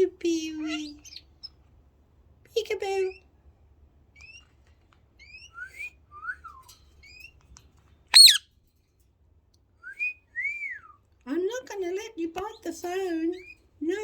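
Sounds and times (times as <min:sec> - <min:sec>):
parakeet chirping: 0:08.1 - 0:08.4.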